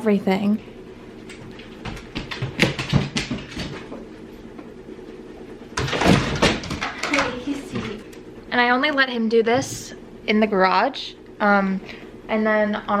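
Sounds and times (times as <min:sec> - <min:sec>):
dog claws tapping on hard floor: 0:01.3 - 0:04.0, 0:05.8 - 0:08.1.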